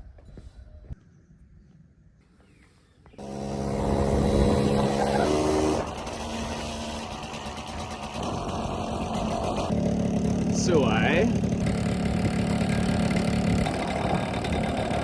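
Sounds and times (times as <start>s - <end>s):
two-stroke motorcycle engine running: 3.2s - 15.0s.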